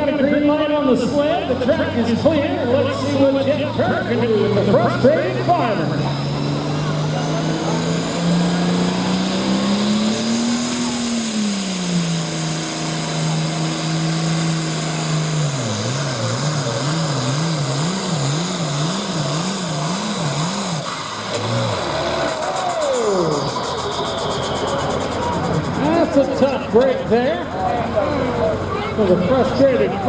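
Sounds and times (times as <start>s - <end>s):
tractor engine under full load: 0.0s - 30.0s.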